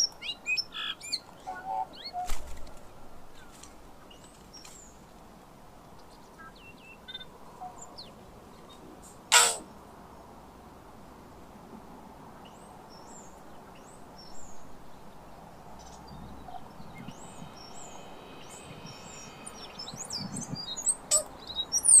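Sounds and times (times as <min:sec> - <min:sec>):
bird held multi-pitch note: 0:09.3 - 0:09.6, 0:16.6 - 0:22.0
bird chirping and whistling: 0:16.5 - 0:22.0.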